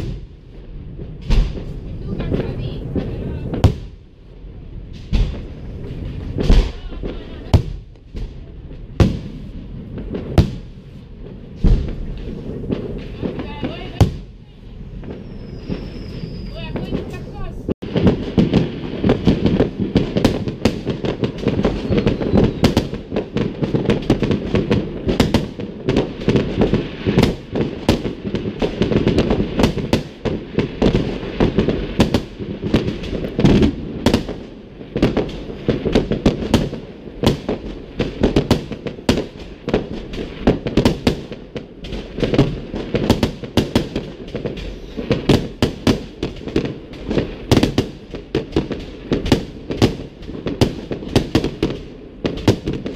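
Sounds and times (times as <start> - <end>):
fireworks bangs and crackling: 0.0 - 52.9.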